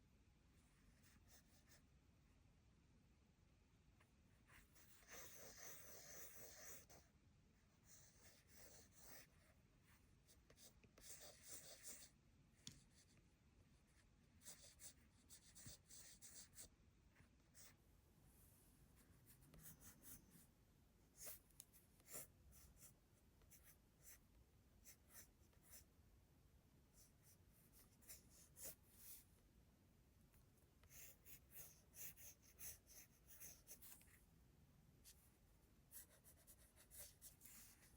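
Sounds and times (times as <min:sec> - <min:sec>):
pencil scratching on paper: 0:04.4 - 0:07.1, 0:07.8 - 0:12.2, 0:13.9 - 0:17.8, 0:19.0 - 0:20.5, 0:21.2 - 0:24.2, 0:24.8 - 0:25.9, 0:27.0 - 0:29.3, 0:30.8 - 0:34.2, 0:35.9 - 0:37.9.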